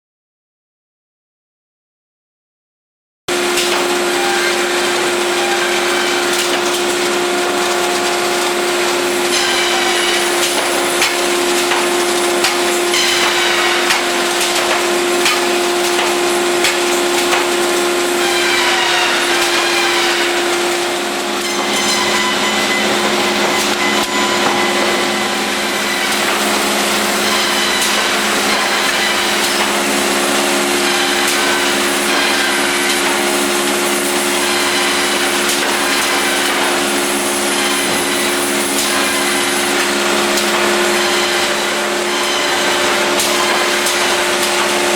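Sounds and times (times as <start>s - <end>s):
bandsaw humming: 3.3s - 44.9s
sliding high-pitched tones: 8.1s - 37.9s.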